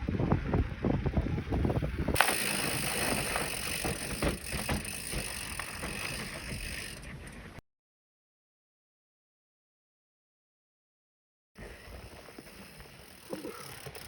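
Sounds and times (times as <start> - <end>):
wind rumble: 0.0 - 7.6
bike clicks: 1.1 - 7.6, 11.6 - 14.0
tyres hissing on dirt: 2.2 - 7.5, 11.6 - 14.0
rattling knocks: 3.2 - 6.5.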